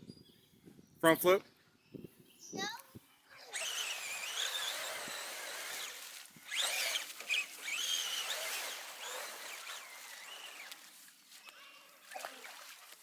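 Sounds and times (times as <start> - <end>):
electric motor whining: 3.5 - 10.8.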